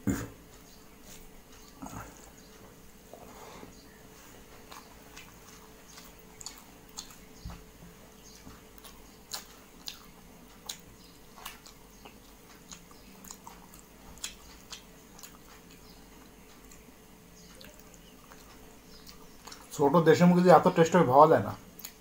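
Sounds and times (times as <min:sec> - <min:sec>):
wet chewing mouth clicks: 0:04.6 - 0:07.5, 0:08.3 - 0:16.8, 0:17.4 - 0:19.7, 0:21.8 - 0:22.0.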